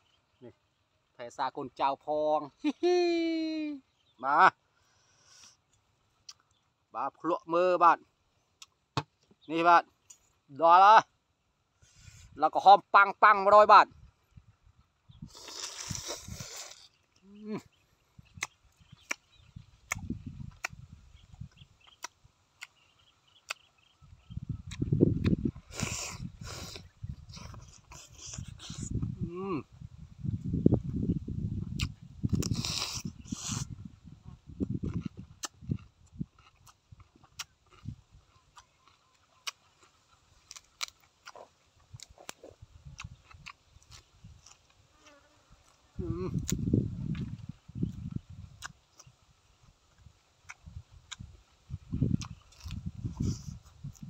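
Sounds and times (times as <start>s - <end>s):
man chewing: 15.2s - 17.3s, 18.2s - 29.2s, 31.6s - 33.9s, 34.6s - 54.0s
wet lip smacks and mouth clicks: 18.3s - 20.8s, 31.7s - 33.6s, 34.8s - 37.9s, 52.1s - 54.0s.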